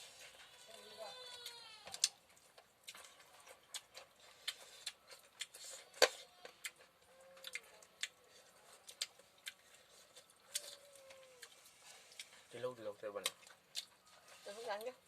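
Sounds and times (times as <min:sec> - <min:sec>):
wet chewing mouth clicks: 0:01.9 - 0:12.5.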